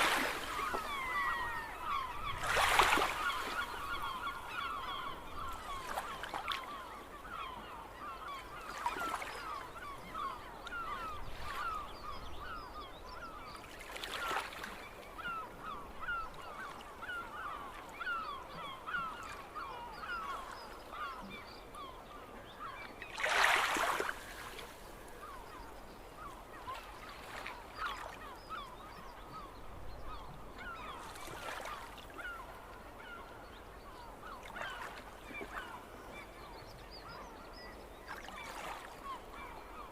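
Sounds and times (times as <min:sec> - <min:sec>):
gulls calling: 0:00.0 - 0:39.9.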